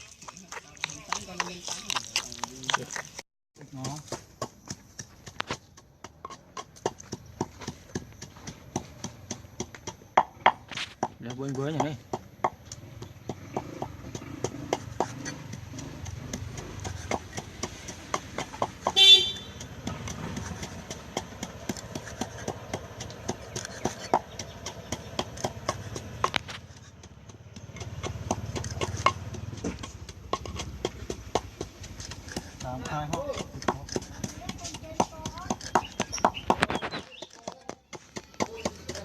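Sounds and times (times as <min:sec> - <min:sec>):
knife chopping on cutting board: 0:13.5 - 0:26.8.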